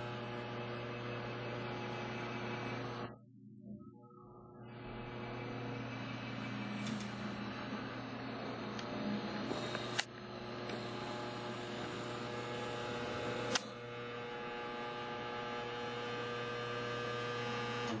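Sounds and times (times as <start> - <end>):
electric motor humming: 0.0 - 18.0
sharp clicks: 9.6 - 10.1.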